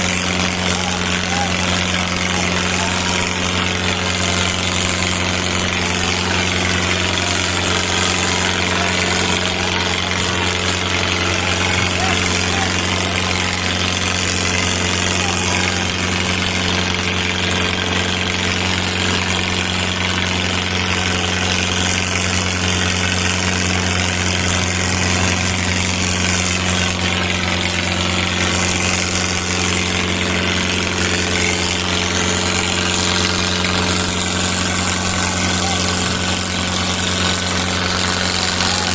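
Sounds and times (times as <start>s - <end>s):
diesel tractor engines droning: 0.0s - 38.9s.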